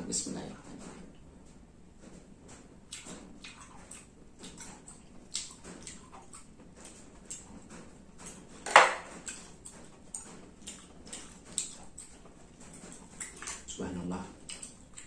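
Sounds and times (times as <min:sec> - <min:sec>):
chewing and lip-smacking: 0:02.8 - 0:15.0
wet mouth clicks: 0:02.9 - 0:06.5, 0:14.4 - 0:15.0.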